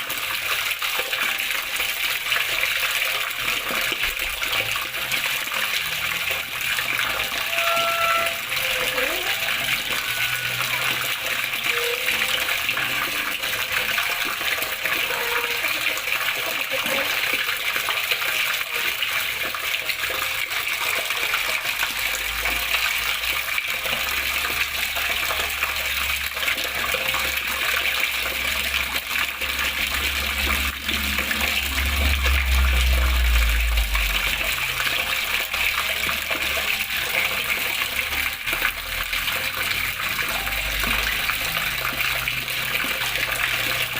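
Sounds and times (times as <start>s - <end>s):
water flowing and splashing: 0.0s - 43.9s
low rumble: 30.3s - 34.8s.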